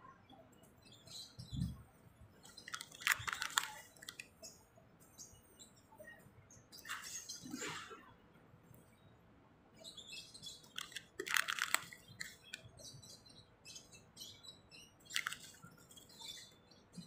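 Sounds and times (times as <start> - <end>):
small birds chirping: 0.0 - 17.0
plastic packet rustling: 2.5 - 4.2, 10.8 - 12.5, 15.1 - 15.6.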